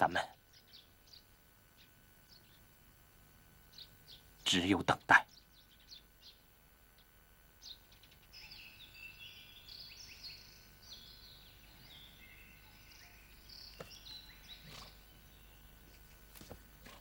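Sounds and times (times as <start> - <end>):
birds chirping and trilling: 0.0 - 17.0
faint background hiss: 0.0 - 17.0.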